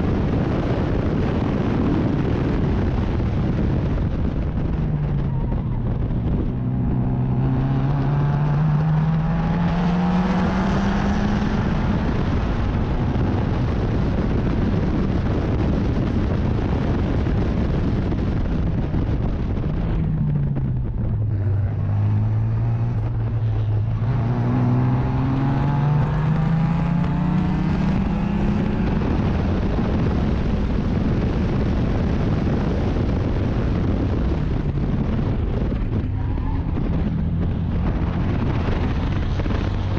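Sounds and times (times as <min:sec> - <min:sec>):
wind and road noise: 0:00.0 - 0:39.9
race car engine revving: 0:03.3 - 0:14.3, 0:17.1 - 0:32.6.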